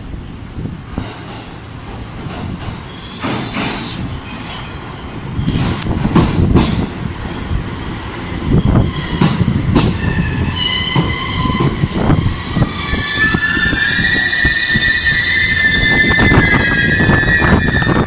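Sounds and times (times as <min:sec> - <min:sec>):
passenger train rumbling: 0:00.0 - 0:18.0
high metallic whine: 0:12.7 - 0:18.0.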